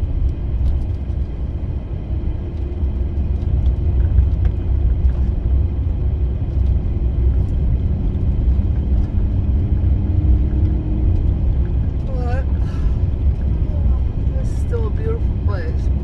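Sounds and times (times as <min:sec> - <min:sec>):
faint engine hum: 0:00.0 - 0:16.0
van driving rumble: 0:00.0 - 0:16.0.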